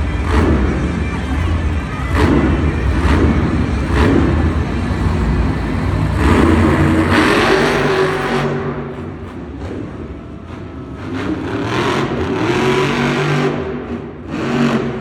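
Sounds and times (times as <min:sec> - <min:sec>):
truck engine revving hard: 0:00.0 - 0:15.0.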